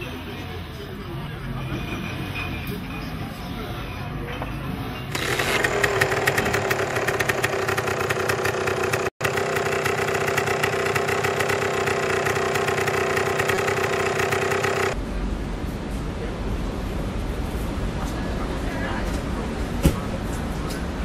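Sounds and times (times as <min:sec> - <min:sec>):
car engine idling: 0:05.2 - 0:15.0
fast ticking rattle: 0:05.2 - 0:15.0.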